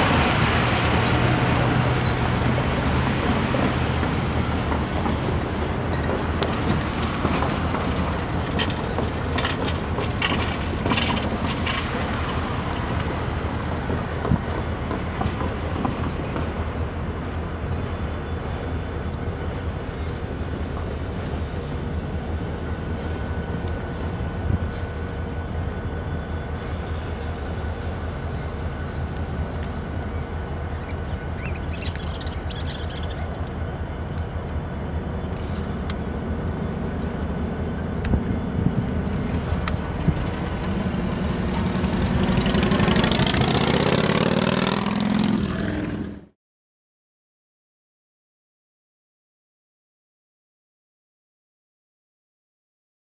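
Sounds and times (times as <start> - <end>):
distant train rumbling past: 0.0 - 46.3
vehicle passing rush: 40.7 - 46.3.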